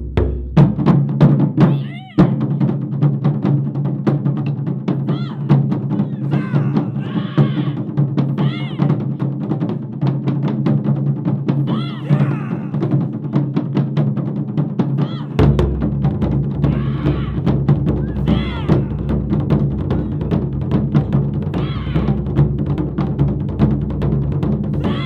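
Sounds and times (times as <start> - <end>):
taiko drum ensemble playing: 0.0 - 25.0
drummers shouting calls: 1.6 - 2.6, 4.9 - 9.4, 11.5 - 13.4, 14.8 - 22.6, 24.6 - 25.0.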